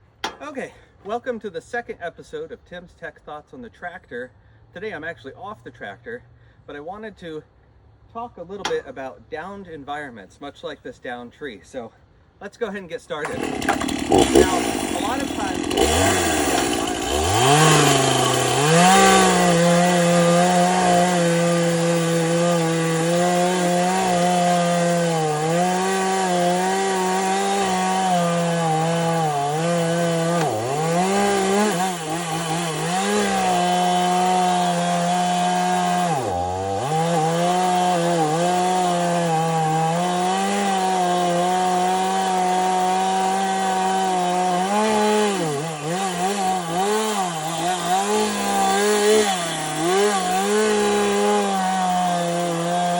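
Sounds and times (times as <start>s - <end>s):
chainsaw cutting wood: 0.1s - 0.4s, 13.2s - 52.9s.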